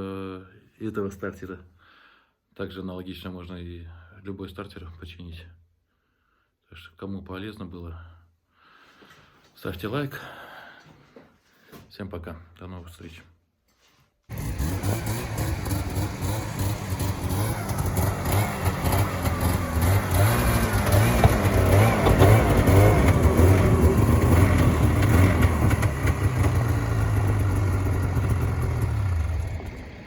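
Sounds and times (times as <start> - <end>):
snowmobile engine revving: 14.3 - 30.0.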